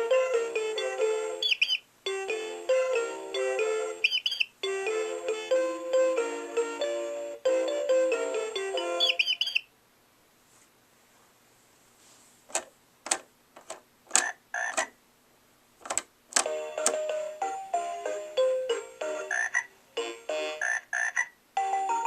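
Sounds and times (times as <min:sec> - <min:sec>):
electronic toy tune: 0:00.0 - 0:09.6
chirpy sound effect: 0:01.4 - 0:01.8, 0:03.4 - 0:04.5, 0:08.7 - 0:09.7
electronic frog croaks: 0:01.4 - 0:01.8, 0:04.0 - 0:04.5, 0:09.0 - 0:09.6, 0:14.1 - 0:15.0, 0:19.1 - 0:19.7, 0:20.4 - 0:21.4.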